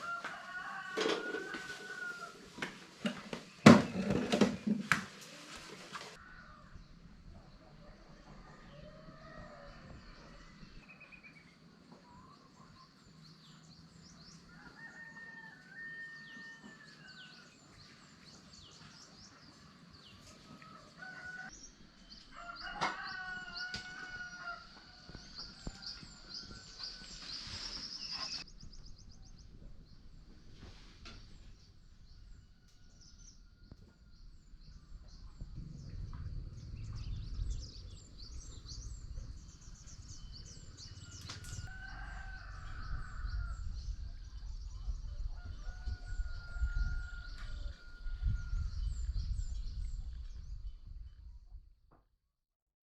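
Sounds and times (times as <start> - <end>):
rooster crowing: 0.0 - 2.4, 14.5 - 17.2, 20.7 - 21.5, 22.3 - 27.1, 40.8 - 43.6
low rumble: 34.1 - 41.7.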